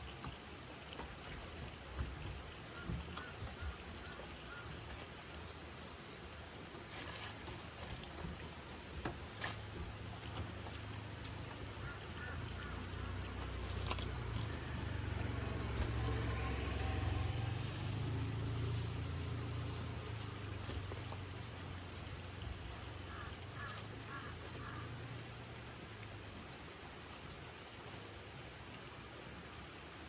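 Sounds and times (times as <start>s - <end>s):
low engine-like rumble: 0.0s - 26.5s
high insect drone: 0.0s - 30.0s.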